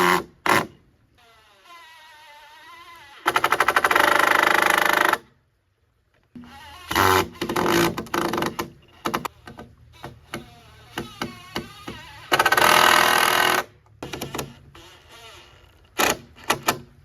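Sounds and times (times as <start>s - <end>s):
power drill driving screws into wood: 0.0s - 5.2s, 6.4s - 9.3s, 10.0s - 16.9s.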